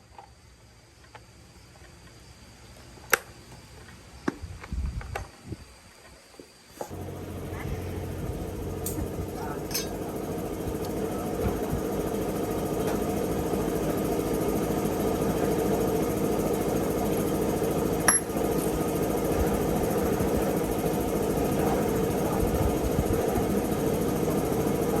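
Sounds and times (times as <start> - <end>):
chainsaw idling: 6.9 - 25.0.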